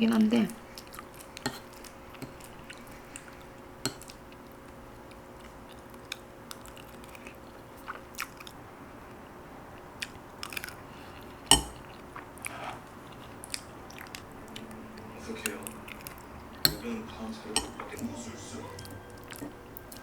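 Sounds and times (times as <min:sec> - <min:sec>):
chewing with crunchy bites: 0:00.4 - 0:18.1.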